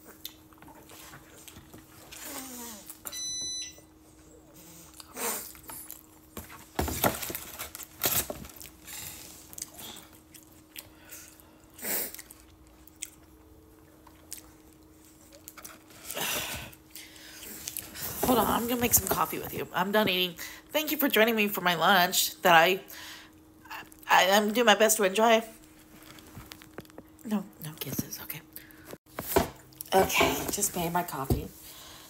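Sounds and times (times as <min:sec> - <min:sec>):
person chewing: 0:00.0 - 0:01.8, 0:04.9 - 0:06.2, 0:09.5 - 0:15.6
faint steady hum: 0:00.0 - 0:32.0.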